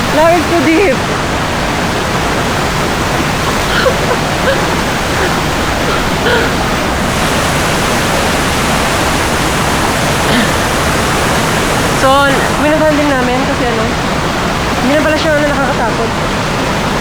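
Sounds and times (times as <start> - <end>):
waterfall roaring: 0.0 - 17.0
faint voices: 3.3 - 16.8.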